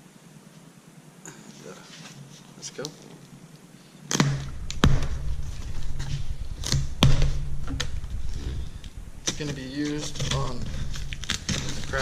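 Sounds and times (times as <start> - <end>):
knocks and thumps on cardboard box: 4.1 - 8.5
low rumbling handling noise: 4.1 - 12.0.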